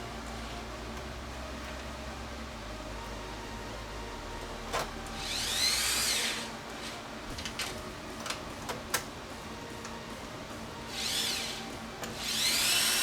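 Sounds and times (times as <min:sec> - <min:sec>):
power tool motor whirring: 0:05.2 - 0:06.9, 0:10.9 - 0:13.0.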